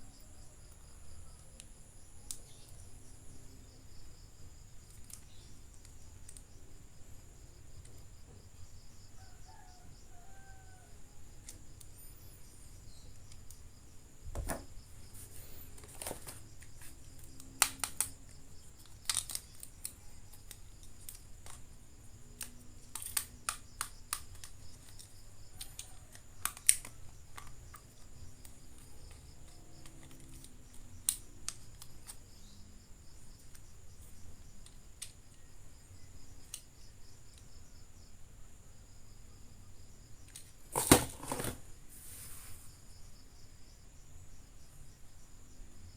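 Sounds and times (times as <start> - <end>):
plastic packaging clicks and snaps: 15.8 - 21.7, 22.4 - 27.8.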